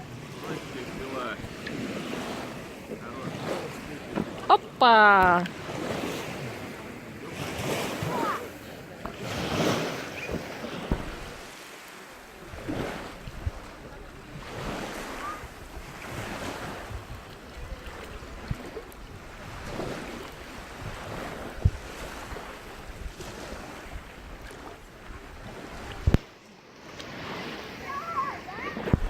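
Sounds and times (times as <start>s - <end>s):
sea waves washing onto shore: 0.0s - 29.0s
wind buffeting microphone: 12.4s - 26.2s.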